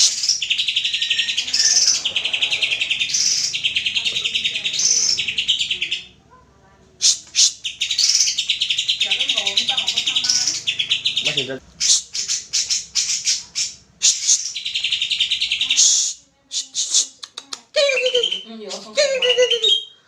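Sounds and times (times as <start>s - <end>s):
sharp loud bird notes: 0.0s - 6.1s
bird singing chattering song: 0.0s - 6.2s, 7.0s - 20.0s.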